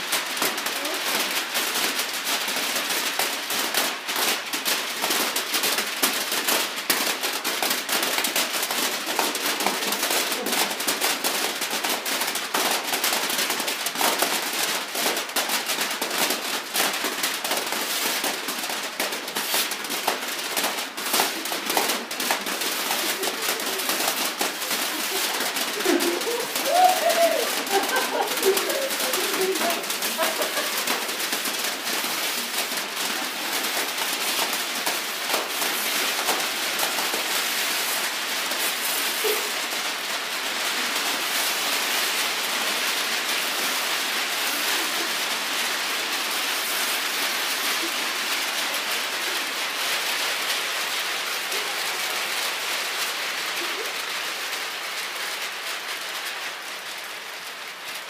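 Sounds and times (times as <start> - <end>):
newspaper rustling and crumpling: 6.5 - 52.0
person speaking: 21.4 - 31.2.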